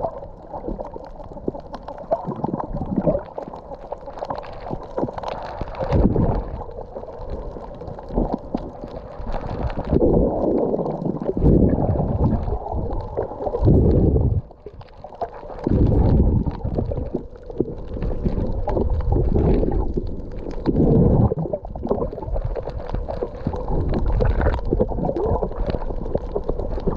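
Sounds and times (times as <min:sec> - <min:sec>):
muffled water sloshing and gurgling: 0:00.0 - 0:26.9.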